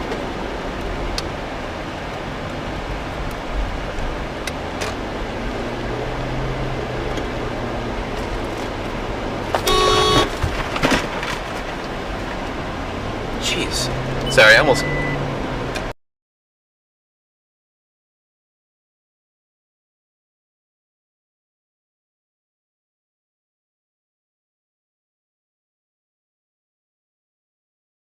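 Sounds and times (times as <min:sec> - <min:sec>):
car road noise: 0:00.0 - 0:16.0
car horn honking: 0:09.6 - 0:10.4.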